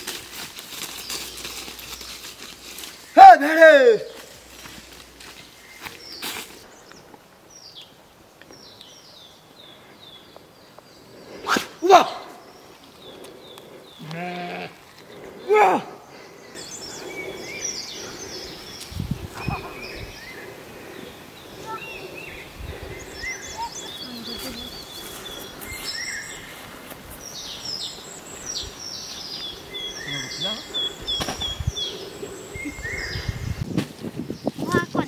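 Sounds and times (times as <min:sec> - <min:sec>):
small birds chirping: 0:00.0 - 0:35.0
sheep bleating: 0:14.0 - 0:14.8.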